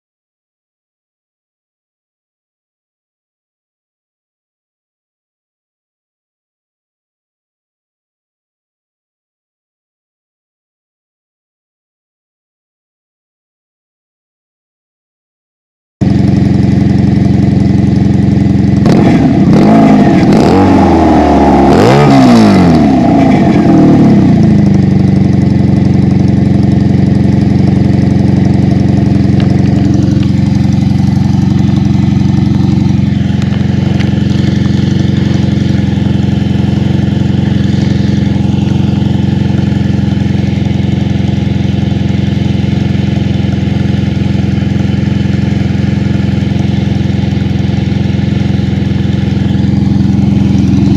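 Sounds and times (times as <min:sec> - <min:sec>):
motorcycle engine idling and revving: 0:16.0 - 0:50.9.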